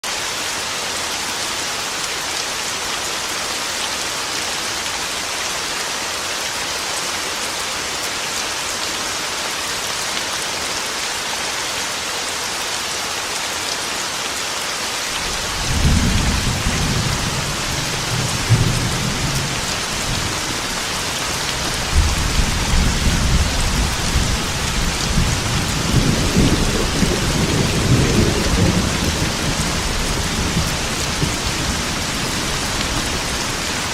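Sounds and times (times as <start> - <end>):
heavy rain on a metal roof: 0.0 - 33.9
thunder rumbling: 15.2 - 33.9.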